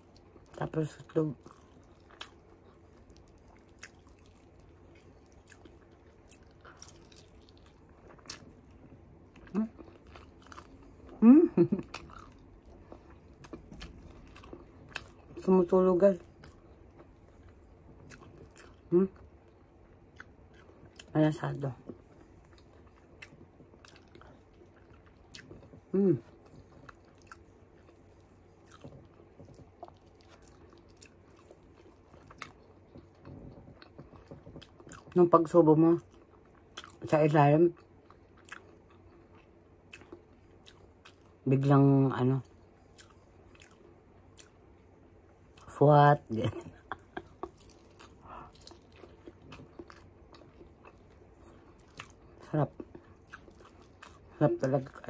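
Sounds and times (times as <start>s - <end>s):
person chewing: 0.0s - 35.2s, 35.9s - 37.1s, 37.7s - 41.4s, 42.4s - 55.0s
person humming mm: 11.2s - 11.7s.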